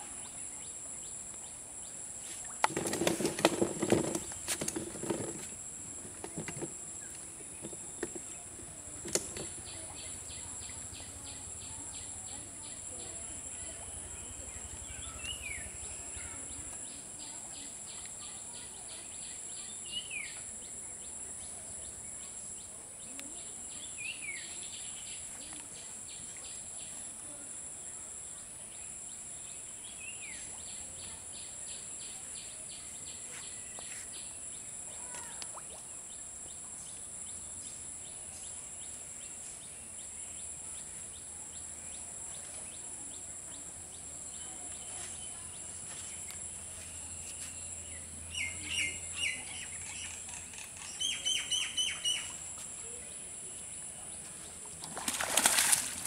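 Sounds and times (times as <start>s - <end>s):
wild birds chirping: 0.1s - 17.3s.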